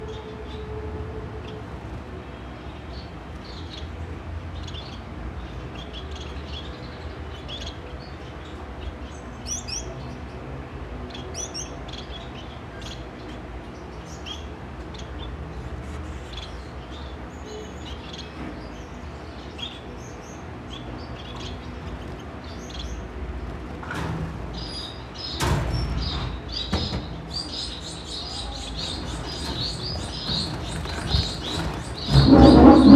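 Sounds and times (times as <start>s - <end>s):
knocks or rustles: 23.6s - 32.9s
baby birds chirping: 26.6s - 32.6s.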